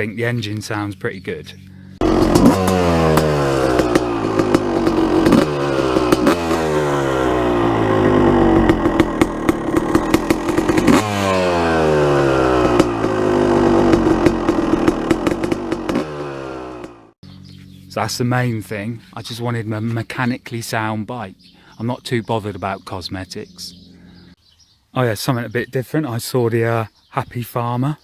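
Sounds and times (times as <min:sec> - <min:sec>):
dirt bike engine revving: 0:01.6 - 0:17.7, 0:22.4 - 0:24.4.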